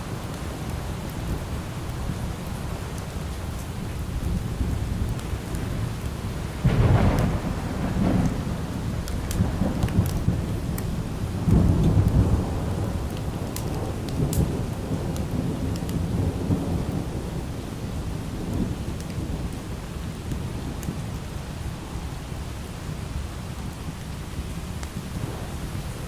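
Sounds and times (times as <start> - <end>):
low rolling thunder: 0.0 - 23.0, 24.4 - 26.0
light rain falling: 0.0 - 26.0.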